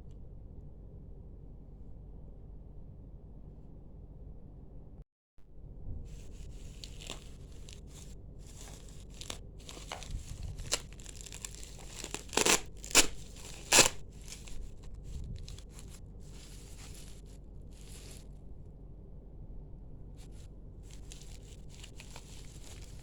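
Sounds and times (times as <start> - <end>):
packaging rustling and crinkling: 6.2 - 18.3, 20.3 - 23.0
sharp packaging crackles or tears: 6.4 - 17.2, 20.9 - 23.0.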